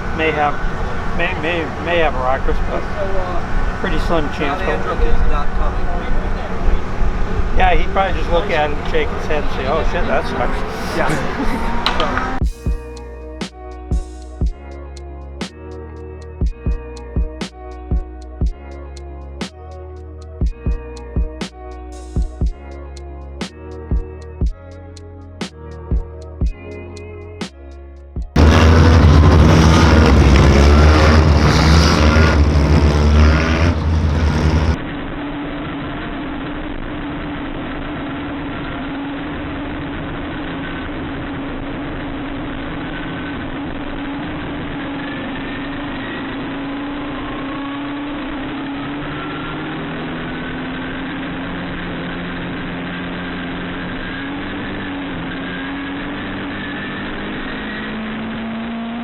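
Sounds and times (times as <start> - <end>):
race car engines circling track: 0.0 - 12.4, 28.4 - 59.0
background music: 0.0 - 34.8.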